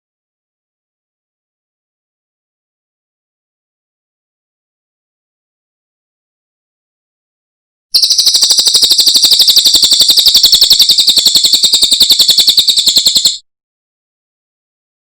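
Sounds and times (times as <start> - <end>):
songbird rapid trill: 8.0 - 13.4.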